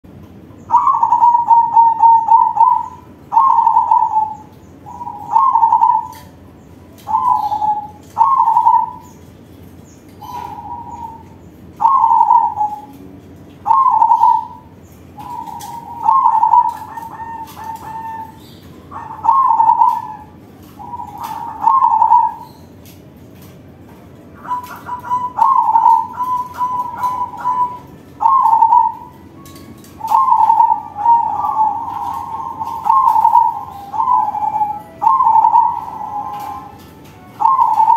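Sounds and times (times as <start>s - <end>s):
dove cooing: 0.6s - 9.3s, 10.1s - 37.9s.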